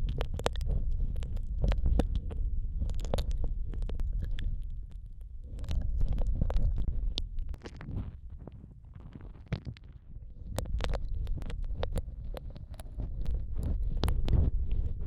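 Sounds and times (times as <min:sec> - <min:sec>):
low rumble: 0:00.0 - 0:15.0
wet mouth clicks and smacks: 0:00.1 - 0:07.7.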